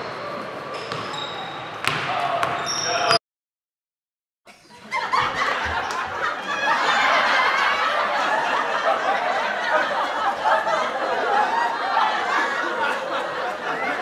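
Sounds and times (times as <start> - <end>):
young people laughing and chattering: 4.5 - 14.0.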